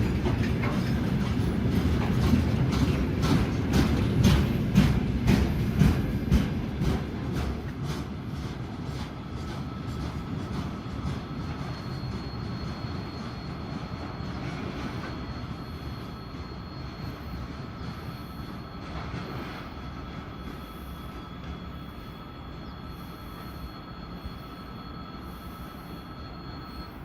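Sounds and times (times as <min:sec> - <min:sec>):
train wheels rumbling on rails: 0:00.0 - 0:27.0
faint high whine: 0:09.4 - 0:27.0.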